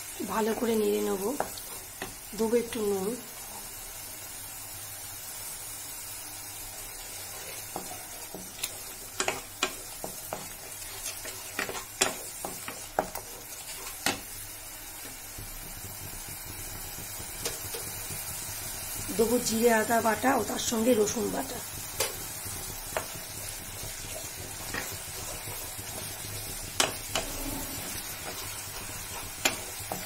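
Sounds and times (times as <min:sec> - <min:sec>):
paste sizzling in hot oil: 0:00.0 - 0:30.0
spatula scraping and knocking pan: 0:06.9 - 0:30.0.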